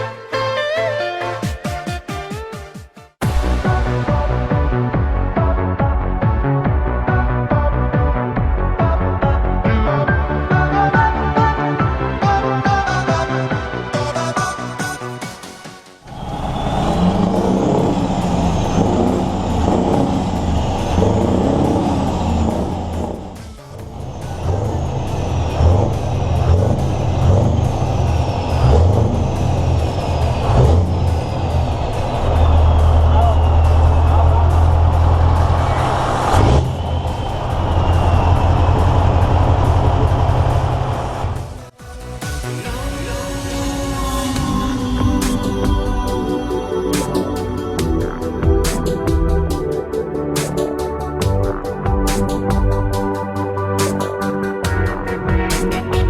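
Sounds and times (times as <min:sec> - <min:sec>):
diesel truck engine running: 0:16.0 - 0:41.8, 0:42.7 - 0:56.0.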